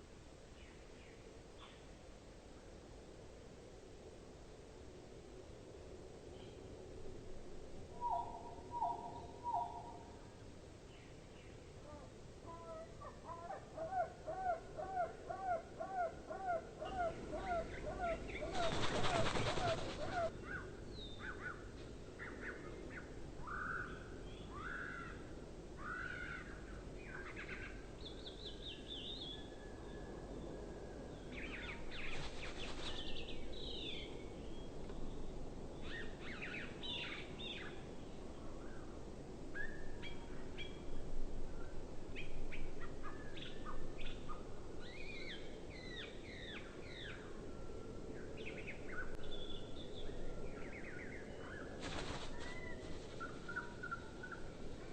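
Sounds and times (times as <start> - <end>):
songbirds chirping and whistling: 16.0 - 21.6, 48.2 - 54.8.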